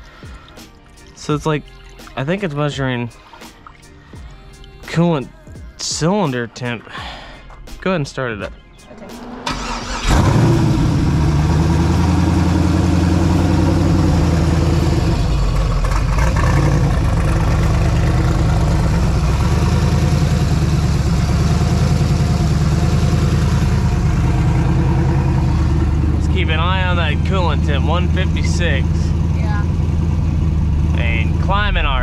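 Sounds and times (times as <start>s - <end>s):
car engine idling: 8.8s - 32.0s.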